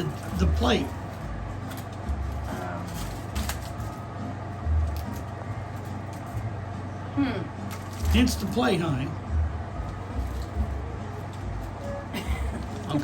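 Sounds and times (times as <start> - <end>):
faint voices: 0.0 - 4.3.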